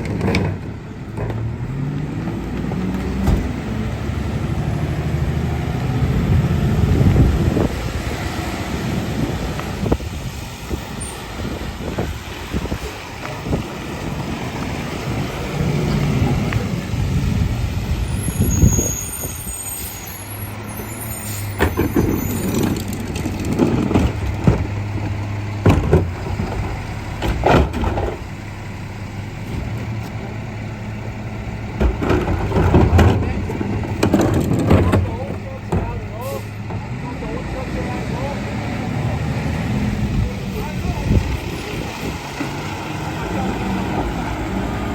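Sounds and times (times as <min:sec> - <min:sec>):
bins clanking and banging: 0:00.0 - 0:01.6, 0:21.5 - 0:28.2, 0:31.7 - 0:36.9
air brakes hissing: 0:18.1 - 0:22.6, 0:36.2 - 0:36.6
diesel engine running: 0:20.0 - 0:44.9.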